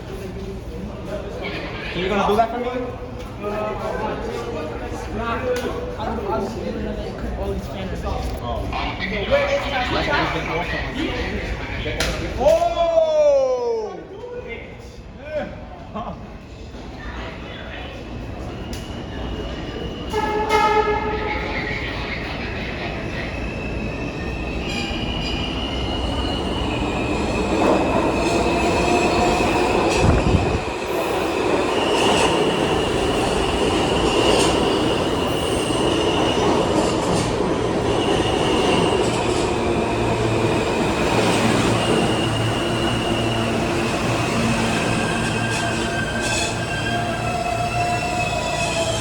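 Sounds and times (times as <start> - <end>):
subway train rumbling: 0.0 - 49.0
wheels squealing: 37.9 - 49.0.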